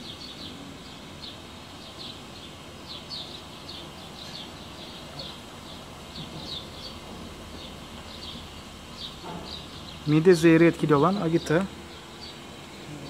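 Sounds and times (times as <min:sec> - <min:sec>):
low steady background noise: 0:00.0 - 0:13.0
small birds chirping: 0:00.0 - 0:13.0.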